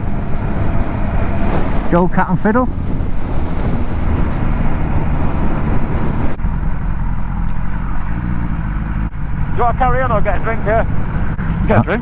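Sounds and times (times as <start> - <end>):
wind noise on helmet microphone: 2.7 - 6.4
motorcycle engine: 2.7 - 12.0.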